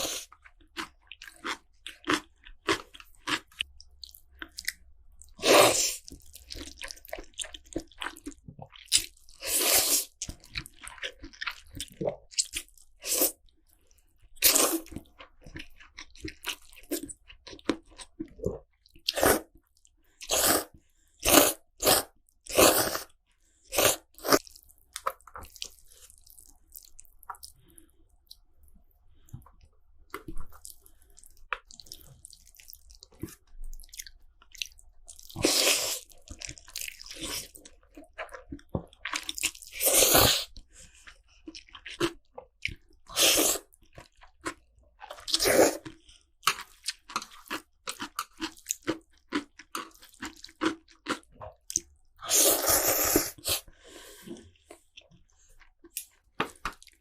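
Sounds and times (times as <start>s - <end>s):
slurping noodles: 9.4s - 10.2s, 20.2s - 24.5s, 39.7s - 40.6s, 45.2s - 45.9s, 52.2s - 54.5s
chewing: 22.5s - 57.0s.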